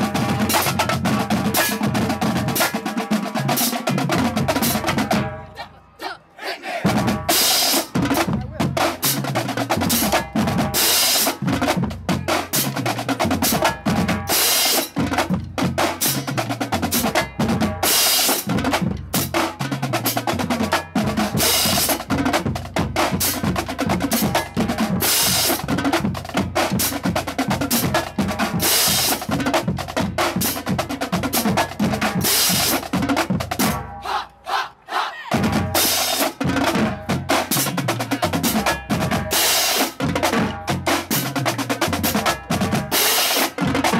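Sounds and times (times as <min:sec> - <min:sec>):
bass drums: 0:00.0 - 0:02.7, 0:14.9 - 0:34.2, 0:35.3 - 0:39.4, 0:40.0 - 0:43.9.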